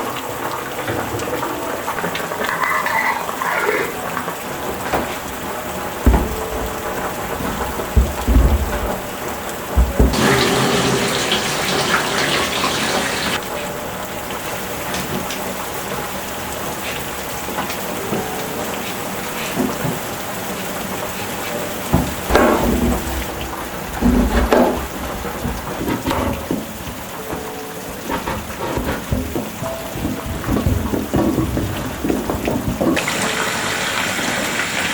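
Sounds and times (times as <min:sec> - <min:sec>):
rain falling: 0:00.0 - 0:34.9
low thuds: 0:05.9 - 0:10.2, 0:22.0 - 0:27.1
loud hiss: 0:09.9 - 0:13.4.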